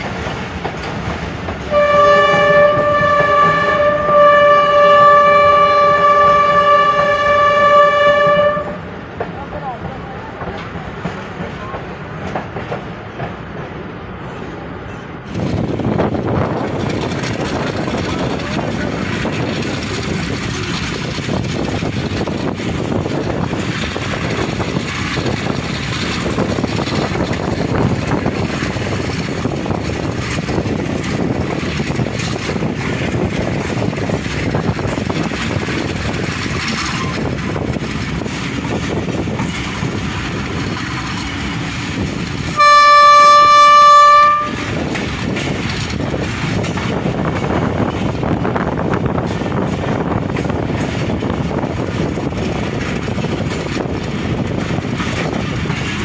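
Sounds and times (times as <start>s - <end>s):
train wheels rumbling on rail: 0.0s - 56.0s
train horn blast: 1.7s - 8.9s, 42.6s - 44.8s.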